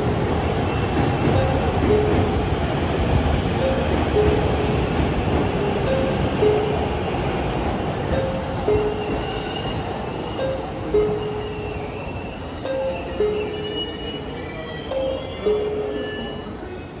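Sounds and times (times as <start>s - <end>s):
electric train braking: 7.9s - 17.0s
faint high squeals: 11.1s - 17.0s
two-note chime: 12.6s - 14.3s.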